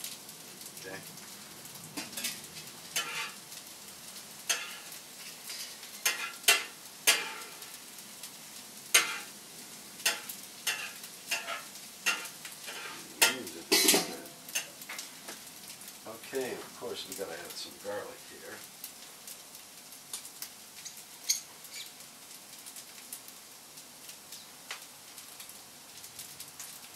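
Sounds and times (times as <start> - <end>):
rice sizzling in a pan: 0.0 - 26.9
utensil scraping a pan: 3.0 - 3.4, 4.5 - 7.8, 8.9 - 9.3, 10.0 - 15.0.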